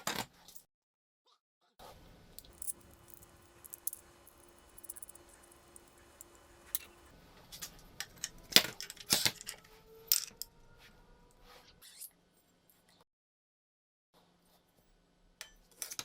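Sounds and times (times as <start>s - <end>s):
metallic clacks: 2.4s - 7.1s
small metal parts clinking: 2.4s - 7.1s.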